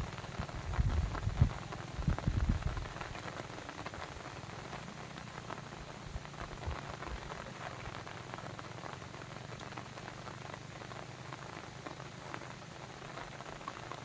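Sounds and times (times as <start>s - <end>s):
low water rumble: 0.0s - 8.5s.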